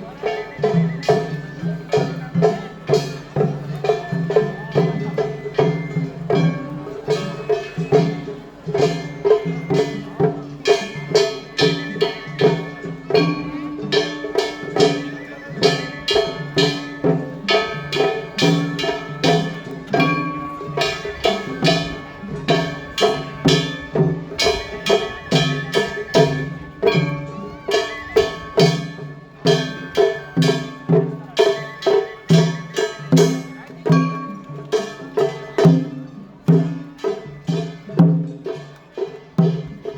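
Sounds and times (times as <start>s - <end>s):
drums beaten in fast rhythm: 0.0s - 39.9s
metal hand gongs ringing: 8.9s - 38.7s.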